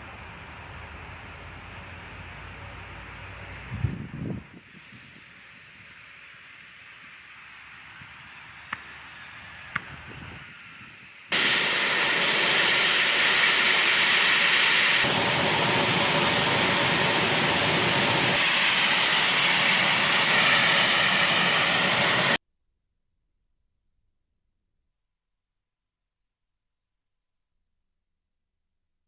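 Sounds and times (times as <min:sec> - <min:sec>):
jet engines hissing: 0:00.0 - 0:22.4.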